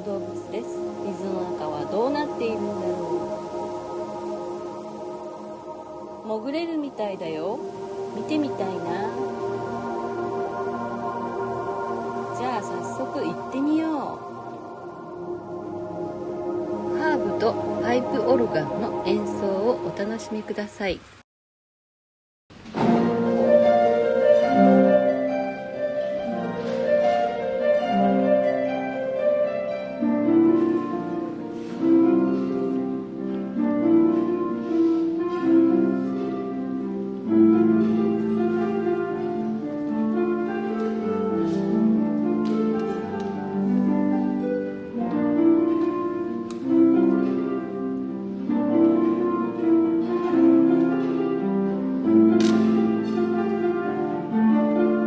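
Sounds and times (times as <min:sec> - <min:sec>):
plucked harp notes: 0:22.8 - 0:55.0.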